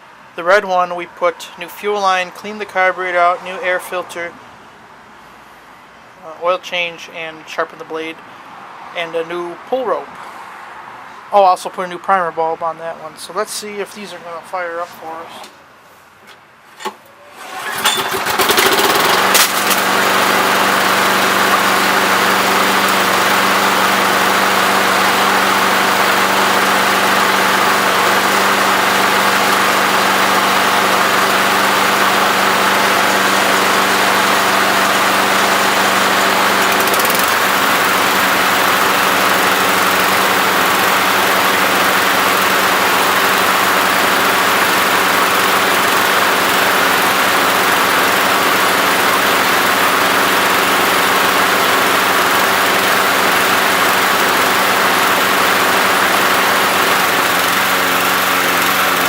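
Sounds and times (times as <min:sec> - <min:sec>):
lawn mower engine running: 0:17.3 - 0:59.0.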